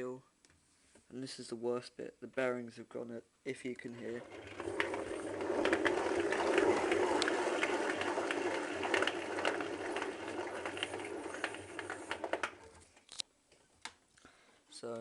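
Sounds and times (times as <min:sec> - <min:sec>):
washing machine drum grinding: 0:04.0 - 0:12.9.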